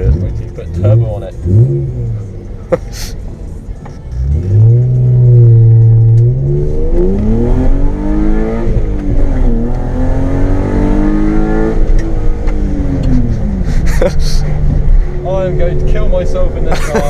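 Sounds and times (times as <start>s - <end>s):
car engine revving hard: 4.2s - 12.0s.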